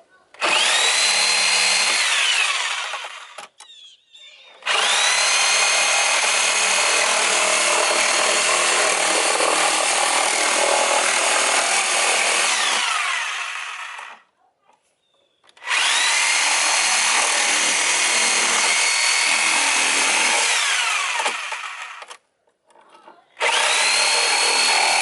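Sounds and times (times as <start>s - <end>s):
power saw motor whine: 4.6s - 9.0s, 15.6s - 22.1s, 23.4s - 25.0s.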